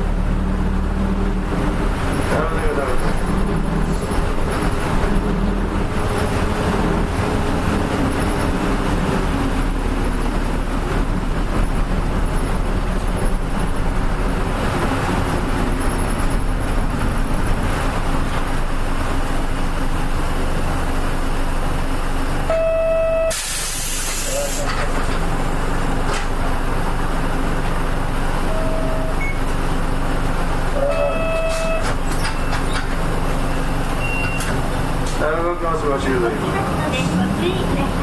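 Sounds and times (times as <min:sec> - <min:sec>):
bus diesel engine running: 0:00.0 - 0:38.0
short electronic beep: 0:22.5 - 0:23.5, 0:28.4 - 0:29.4, 0:30.8 - 0:31.9.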